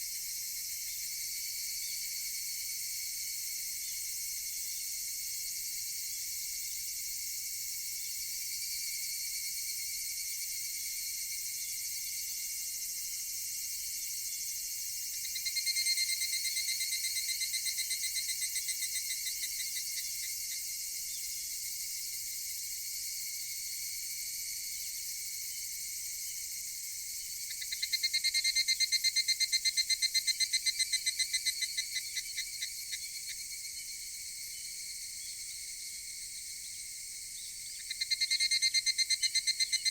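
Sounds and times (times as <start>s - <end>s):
cicada chorus: 0.0s - 39.9s
nearby cicada fast repeated notes: 0.0s - 39.9s.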